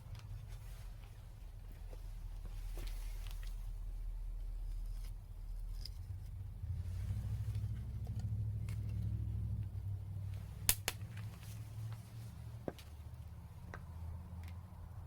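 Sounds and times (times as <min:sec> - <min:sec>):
low steady rumble: 0:00.0 - 0:15.0
wood fire crackling: 0:10.2 - 0:12.1.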